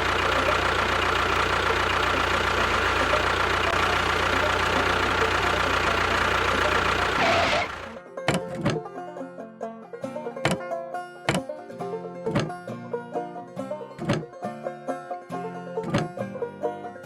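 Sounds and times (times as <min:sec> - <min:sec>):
engine humming: 0:00.0 - 0:08.9, 0:12.2 - 0:12.6, 0:13.9 - 0:14.3, 0:15.8 - 0:16.2
banjo music: 0:00.0 - 0:17.0.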